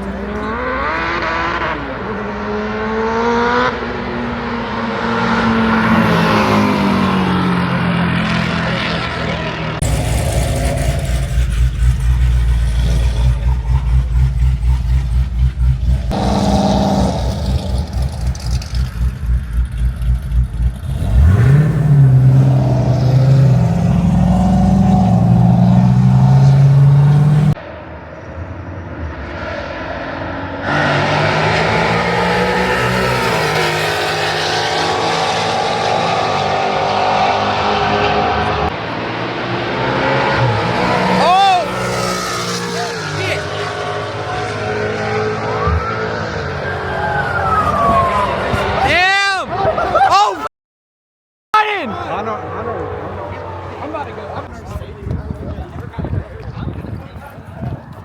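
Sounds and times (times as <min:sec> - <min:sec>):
car engines revving: 0:00.0 - 0:50.0, 0:51.6 - 0:58.0
pulsing loud rumbling: 0:09.6 - 0:27.6.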